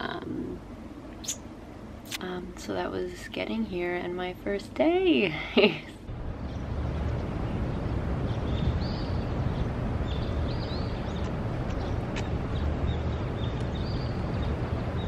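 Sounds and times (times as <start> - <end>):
low street rumble: 0.0 - 15.0
small bird chirping: 1.2 - 1.5, 6.4 - 15.0.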